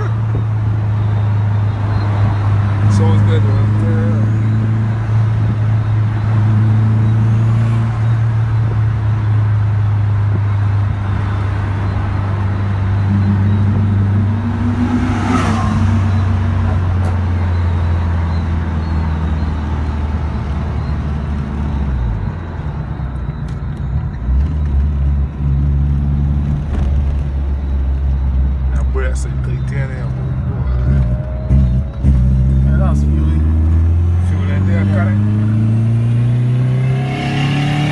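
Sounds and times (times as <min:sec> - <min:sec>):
car engine low drone: 0:00.0 - 0:37.9
brief rising and falling sound: 0:13.1 - 0:16.9.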